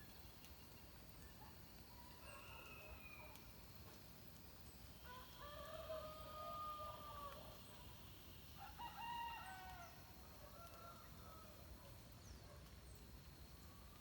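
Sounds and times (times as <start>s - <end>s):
faint birdsong: 4.6s - 14.0s
rooster crowing: 5.1s - 7.4s, 8.6s - 10.0s.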